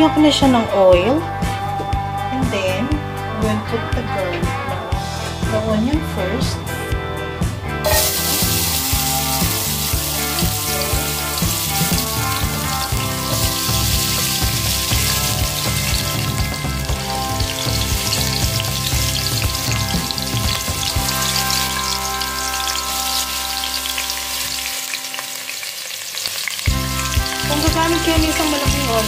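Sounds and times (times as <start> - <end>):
background music: 0.0 - 29.0
onion sizzling in hot oil: 7.8 - 29.0.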